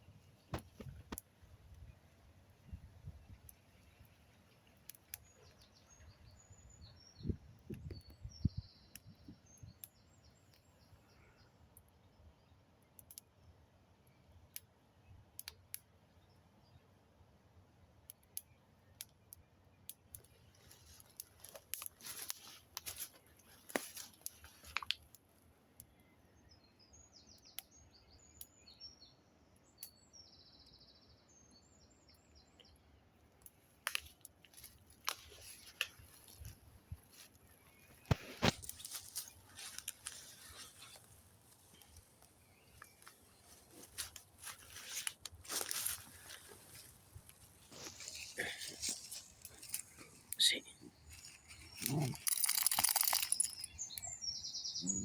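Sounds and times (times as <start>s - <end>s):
birds chirping faintly: 0.0s - 55.0s
wood crackling: 19.8s - 25.4s, 33.3s - 54.1s.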